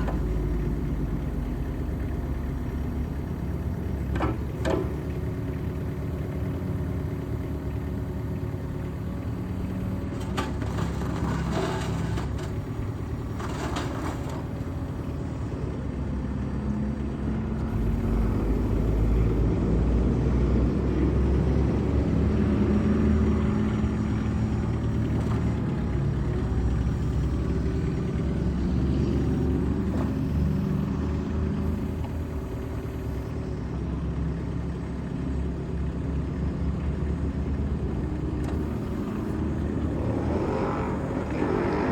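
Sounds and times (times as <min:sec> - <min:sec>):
diesel excavator engine running: 0:00.0 - 0:41.9.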